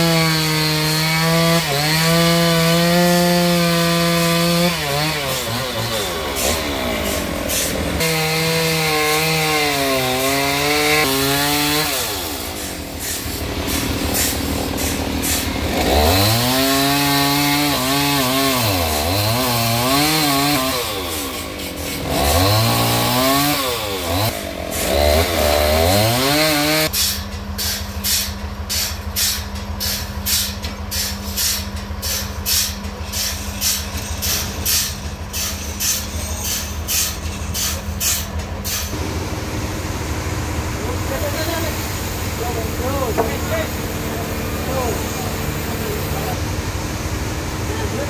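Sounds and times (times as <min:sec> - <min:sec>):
chainsaw cutting wood: 0:00.0 - 0:26.9, 0:40.8 - 0:46.4.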